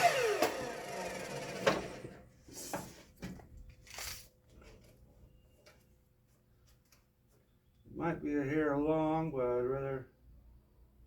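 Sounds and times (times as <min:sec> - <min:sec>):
power saw winding down: 0:00.0 - 0:02.2.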